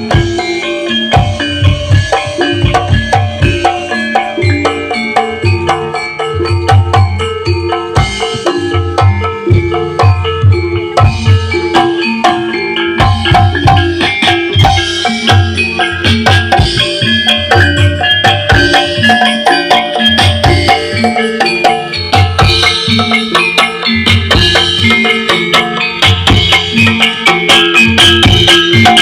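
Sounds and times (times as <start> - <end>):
metal mallet instruments melody: 0.0 - 29.0.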